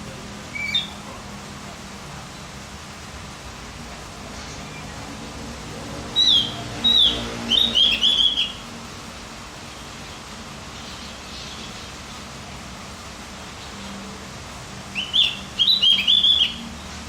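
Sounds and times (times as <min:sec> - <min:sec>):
bird whistled song: 0:00.5 - 0:01.0, 0:06.2 - 0:08.6, 0:14.9 - 0:16.7.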